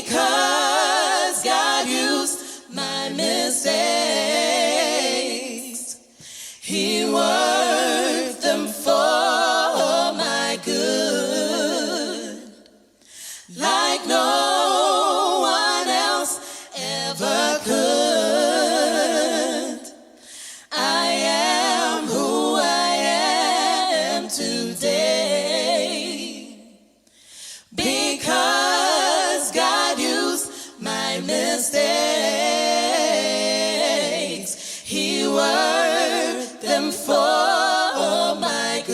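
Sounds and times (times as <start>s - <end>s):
choir singing a cappella gospel: 0.0s - 38.9s
breaths: 2.4s - 2.7s, 6.1s - 6.7s, 12.9s - 13.5s, 16.4s - 16.8s, 20.1s - 20.7s, 27.0s - 27.8s, 30.5s - 30.8s, 34.6s - 34.9s.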